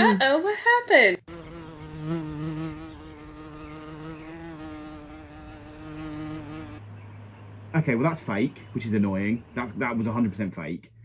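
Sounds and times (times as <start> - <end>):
buzzing drone: 1.3 - 6.8.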